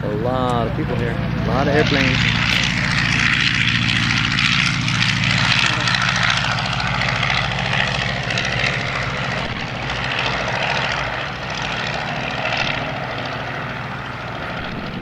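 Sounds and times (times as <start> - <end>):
propeller airplane engine drone: 0.0 - 15.0.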